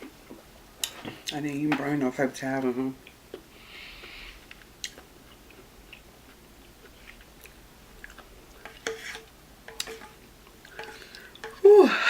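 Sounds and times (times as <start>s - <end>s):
chewing noodles: 3.0s - 8.9s.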